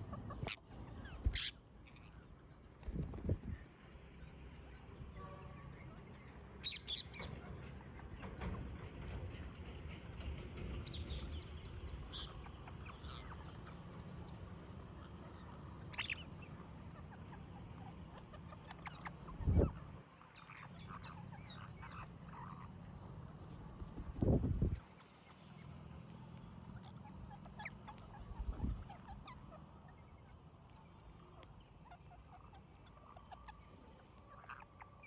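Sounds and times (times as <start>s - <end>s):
parrots squawking and chirping: 0.1s - 2.3s, 12.0s - 14.2s, 14.9s - 25.7s, 26.7s - 35.0s
steady low rumble: 10.8s - 20.0s, 20.8s - 24.8s, 25.5s - 31.3s.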